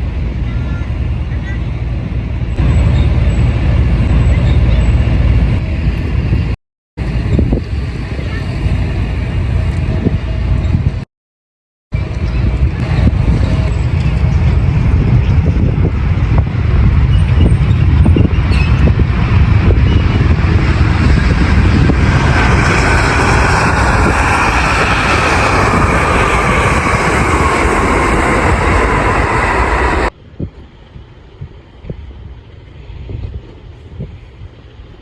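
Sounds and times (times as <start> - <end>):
jet airliner rumble: 0.0 - 11.1, 11.9 - 35.0
jet engine whine falling in pitch: 12.0 - 30.2.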